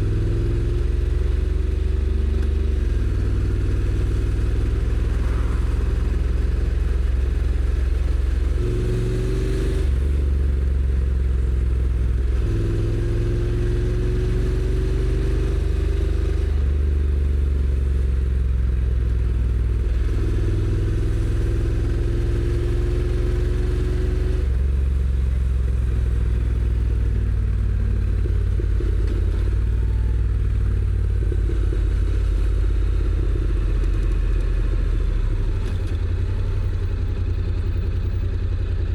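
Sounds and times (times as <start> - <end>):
steady rushing noise: 4.1 - 8.7.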